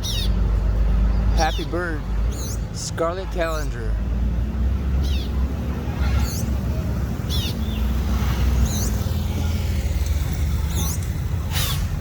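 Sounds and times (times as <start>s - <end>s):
bird chirping: 0.0s - 3.8s, 6.0s - 9.4s.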